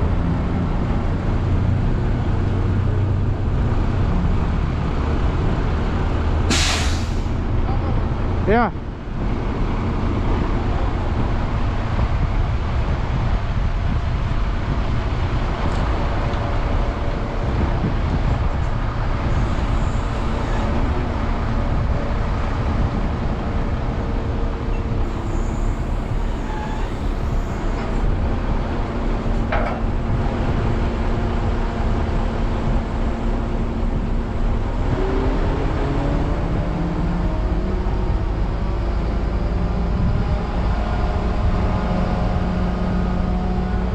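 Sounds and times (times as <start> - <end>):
crane diesel engine running: 0.0 - 43.9.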